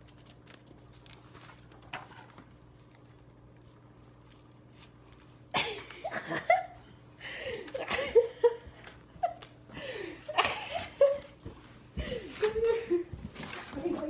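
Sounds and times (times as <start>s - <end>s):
woman laughing: 5.5s - 11.4s, 12.0s - 13.1s.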